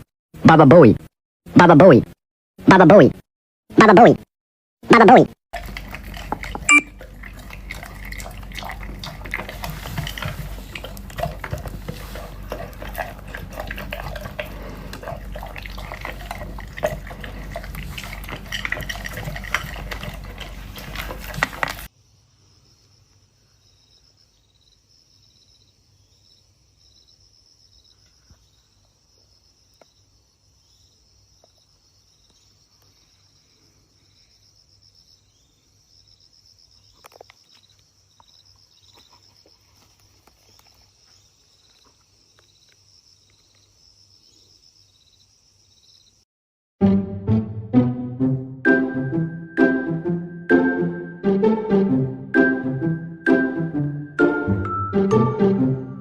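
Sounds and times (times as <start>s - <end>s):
water splashing and sloshing: 5.6s - 21.9s
insect trill: 22.0s - 39.6s, 40.5s - 46.2s.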